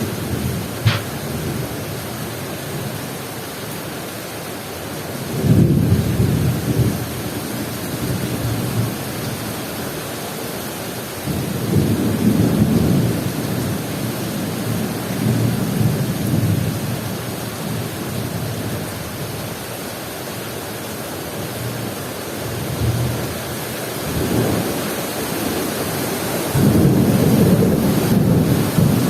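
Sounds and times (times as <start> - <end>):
thunder rumbles: 0.0 - 1.8, 26.5 - 29.0
heavy rain pouring: 0.0 - 29.0
sharp click: 0.8 - 1.2.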